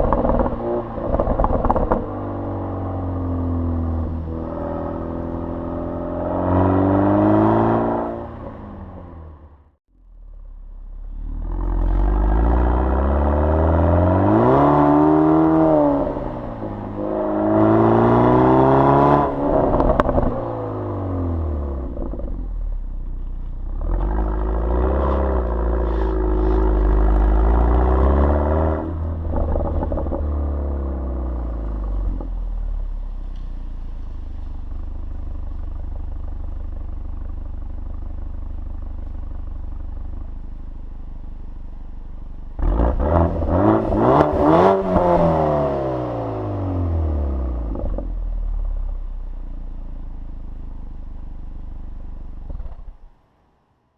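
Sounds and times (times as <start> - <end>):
exhaust crackles: 0.0 - 7.5, 10.9 - 48.9
car engine accelerating through gears: 0.0 - 9.6, 11.2 - 22.5, 23.7 - 32.6, 42.6 - 48.4.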